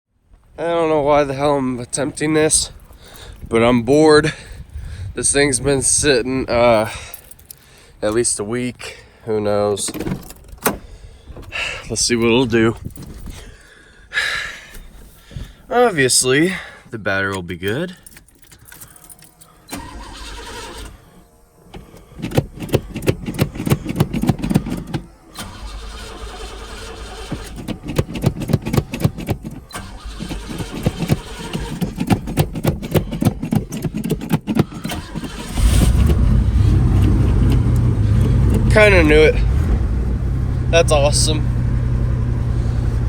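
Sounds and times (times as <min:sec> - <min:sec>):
starter motor cranking: 0:18.6 - 0:43.0
car engine running: 0:19.0 - 0:43.0.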